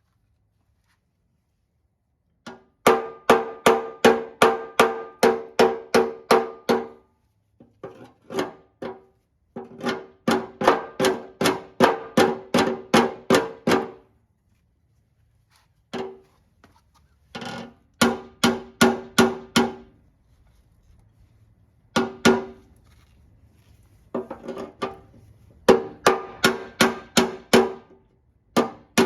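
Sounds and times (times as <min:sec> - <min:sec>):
hammer striking steel: 0:25.7 - 0:27.9.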